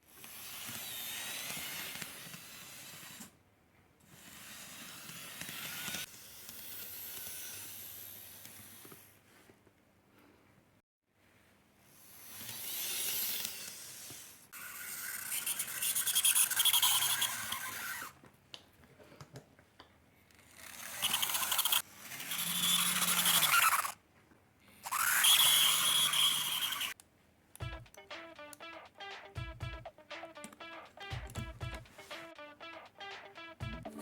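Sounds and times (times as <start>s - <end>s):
model train motor whirring: 0.0s - 3.4s, 4.1s - 9.2s, 11.9s - 18.2s, 20.3s - 24.0s, 24.8s - 27.0s.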